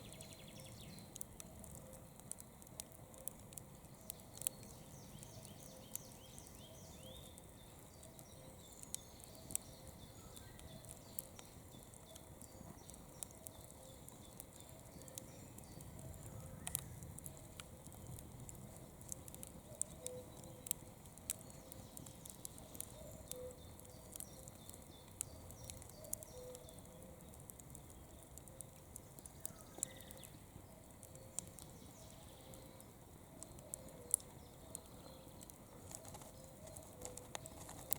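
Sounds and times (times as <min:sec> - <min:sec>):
campfire crackling and popping: 0:00.0 - 0:37.9
low steady fire hiss: 0:00.0 - 0:37.9.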